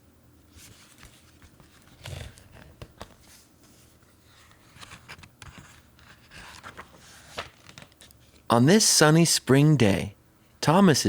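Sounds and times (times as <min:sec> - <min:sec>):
paper pages rustling: 0:00.5 - 0:08.5.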